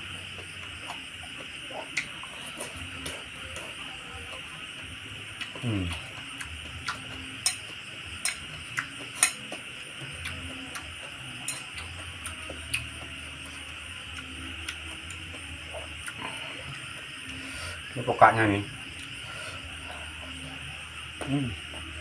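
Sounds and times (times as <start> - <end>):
chewing and mouth smacks: 0.3 - 4.4, 5.4 - 17.2.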